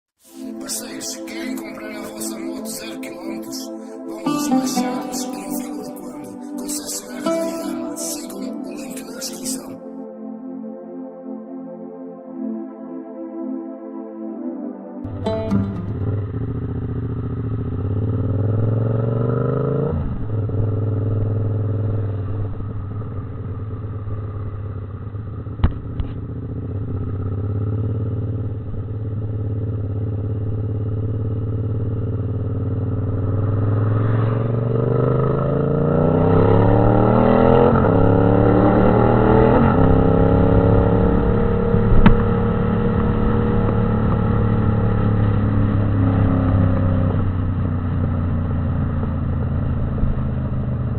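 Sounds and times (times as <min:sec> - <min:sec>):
motorcycle engine revving: 0:15.1 - 0:50.9.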